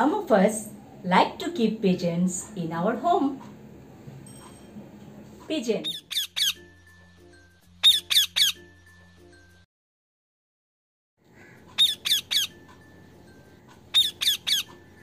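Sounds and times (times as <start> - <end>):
bird squawking: 5.8 - 6.7, 7.8 - 8.7, 11.3 - 12.7, 13.5 - 15.0.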